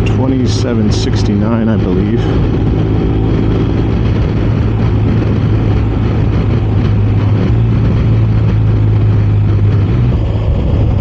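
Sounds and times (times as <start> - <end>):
motorcycle engine cruising: 0.0 - 11.0
wind and road noise: 0.0 - 11.0.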